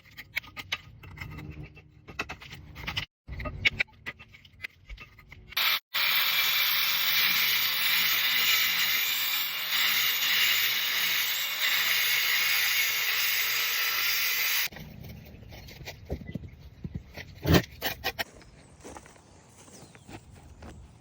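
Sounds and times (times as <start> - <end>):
knocks and scrapes: 0.0 - 5.6, 14.7 - 21.0.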